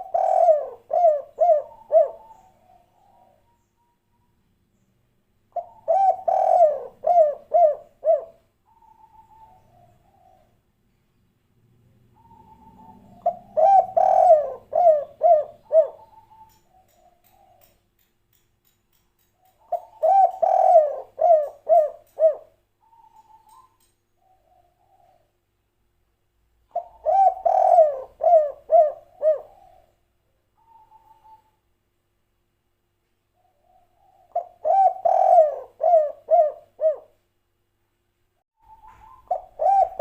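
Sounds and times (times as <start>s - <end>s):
dove cooing: 0.0s - 4.0s, 5.5s - 10.6s, 12.1s - 17.8s, 19.6s - 25.3s, 26.6s - 30.0s, 30.6s - 31.6s, 33.4s - 37.2s, 38.6s - 40.0s.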